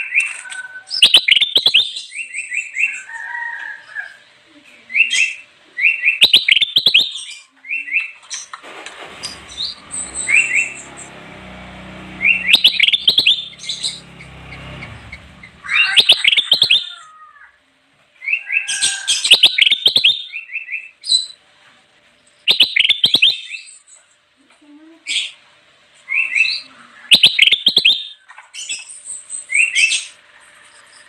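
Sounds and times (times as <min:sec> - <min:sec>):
bulbul chirping and whistling: 0:12.2 - 0:14.0, 0:22.5 - 0:23.5, 0:27.1 - 0:28.1.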